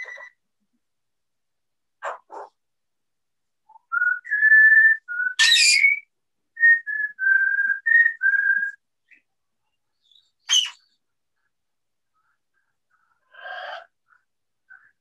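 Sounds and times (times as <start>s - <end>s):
parrot squawk: 0.0s - 0.4s, 5.4s - 6.0s, 10.4s - 10.9s
parrot whistling notes: 4.1s - 6.0s.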